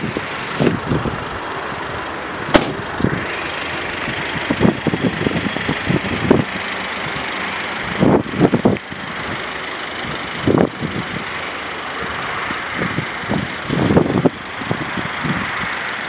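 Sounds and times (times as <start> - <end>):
wind buffeting the microphone: 0.0 - 3.4, 4.0 - 9.4, 10.0 - 11.4, 12.0 - 15.8
diesel engine idling: 0.0 - 16.0
car door shutting: 2.4 - 3.0.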